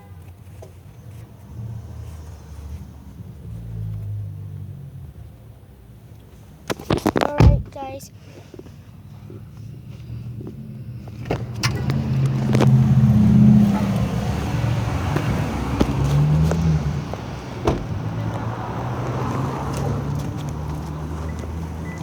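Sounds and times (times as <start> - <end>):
vehicle engine revving: 9.2 - 22.0.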